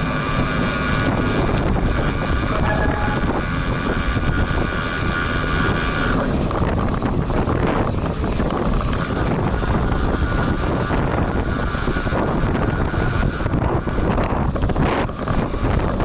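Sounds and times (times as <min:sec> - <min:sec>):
steady higher tones: 0:02.5 - 0:03.6
wind buffeting microphone: 0:06.2 - 0:16.0.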